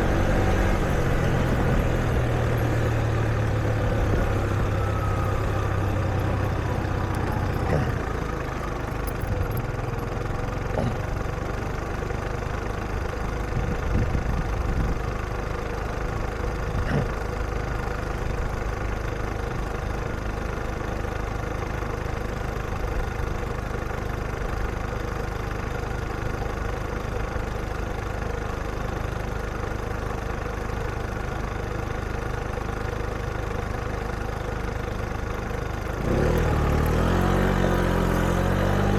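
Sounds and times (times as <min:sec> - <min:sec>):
low hum: 0:00.0 - 0:12.2
vehicle engines idling: 0:00.0 - 0:38.9.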